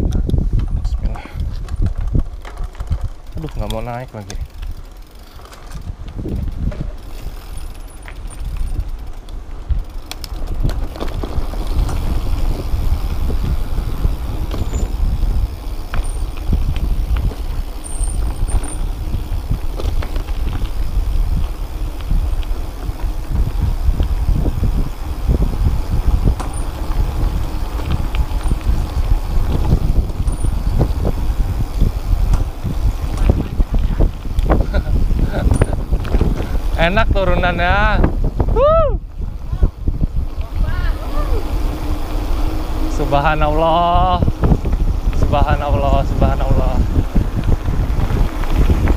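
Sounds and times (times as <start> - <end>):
bike knocks and rattles: 0.0 - 38.2
wind buffeting microphone: 0.0 - 48.9.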